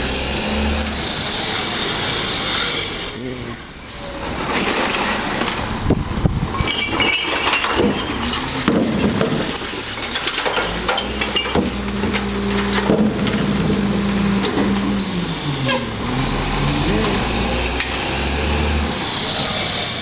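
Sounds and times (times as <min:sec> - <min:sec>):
refuse truck running: 0:00.0 - 0:20.0
bottles and cans clattering: 0:04.4 - 0:17.2.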